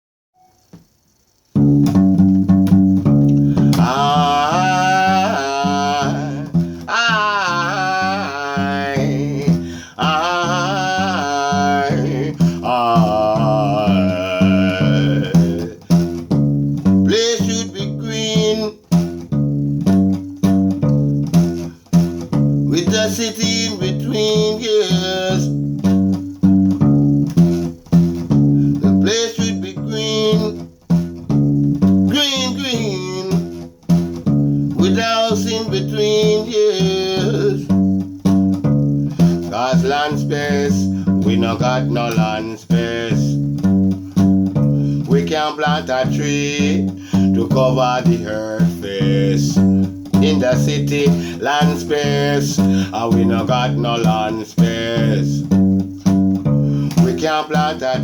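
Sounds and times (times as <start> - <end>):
acoustic guitar low pattern: 0.4 - 58.0
man's wordless singing: 3.4 - 19.0, 22.7 - 25.7, 28.7 - 30.7, 32.0 - 33.6, 34.7 - 37.9, 39.1 - 58.0.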